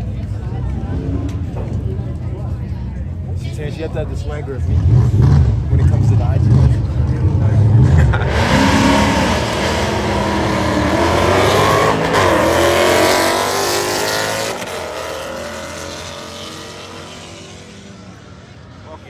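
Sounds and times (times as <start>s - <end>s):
car engine revving past: 4.6s - 19.0s.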